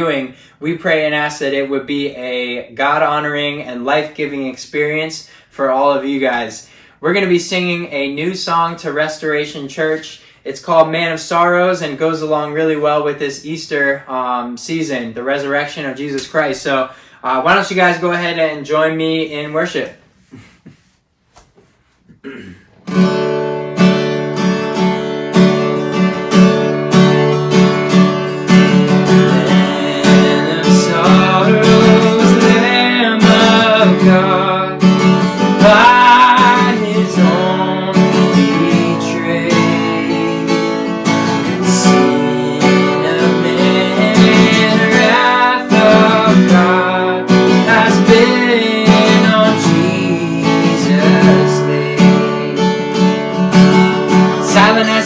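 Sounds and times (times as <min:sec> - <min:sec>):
acoustic guitar strumming: 0:22.8 - 0:55.0
person singing worship song: 0:28.3 - 0:52.9, 0:54.3 - 0:55.0.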